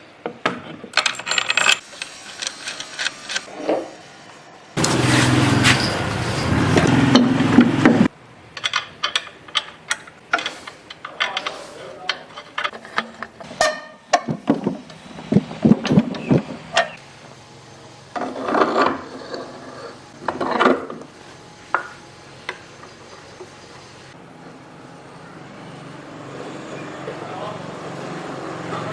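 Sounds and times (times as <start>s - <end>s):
clicks and knocks of parts handled: 0.4s - 3.5s, 8.6s - 17.0s
power tool running: 4.8s - 8.1s.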